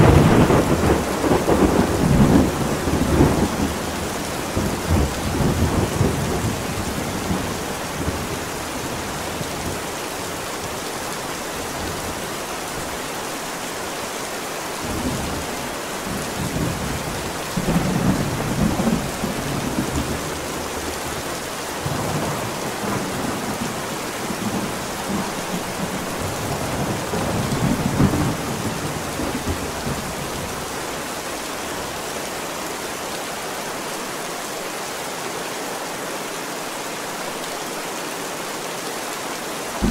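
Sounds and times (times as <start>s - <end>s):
thunder rumbling: 0.0s - 8.5s, 21.8s - 30.7s
heavy rain: 0.0s - 39.9s.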